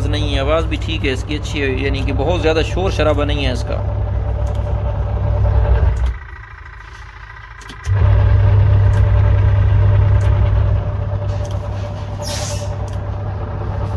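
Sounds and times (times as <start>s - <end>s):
washing machine motor hum: 0.0s - 13.9s.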